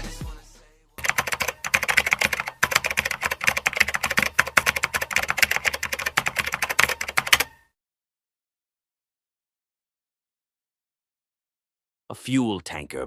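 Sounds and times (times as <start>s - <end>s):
rapid typing on keyboard: 1.0s - 7.6s.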